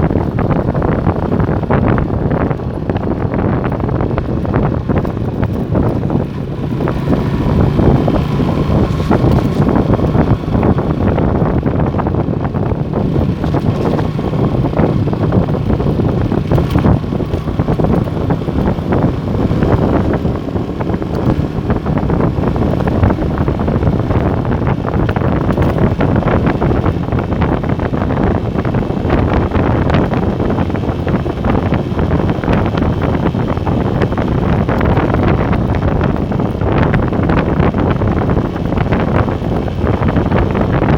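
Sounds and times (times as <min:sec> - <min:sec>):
motorcycle engine running: 0:00.0 - 0:40.9
wind buffeting microphone: 0:00.0 - 0:40.9.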